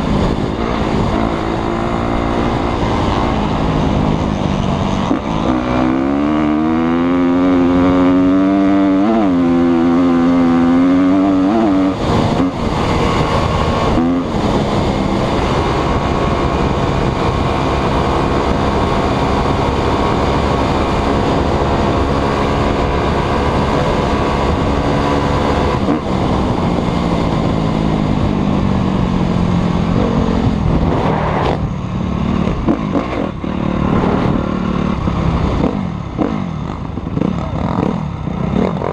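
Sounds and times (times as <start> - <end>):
motocross bike engine revving: 0.0 - 27.6, 29.6 - 38.9.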